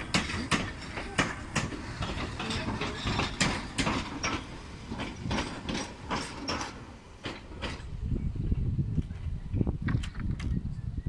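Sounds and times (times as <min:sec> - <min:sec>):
train wheels clacking over rail joints: 0:00.0 - 0:08.0.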